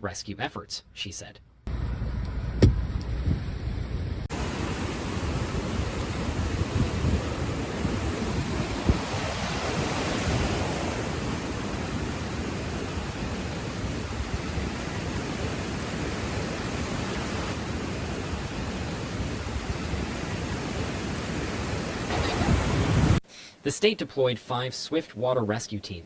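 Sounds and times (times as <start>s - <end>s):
floodwater rushing: 4.3s - 23.2s.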